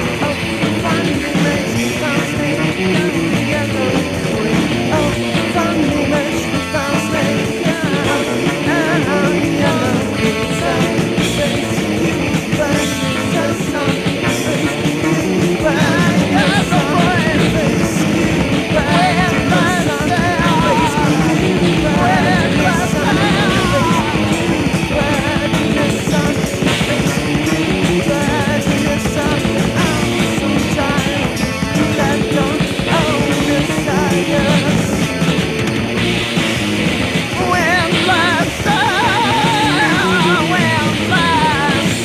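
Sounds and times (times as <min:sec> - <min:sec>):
rock band playing: 0:00.0 - 0:42.0.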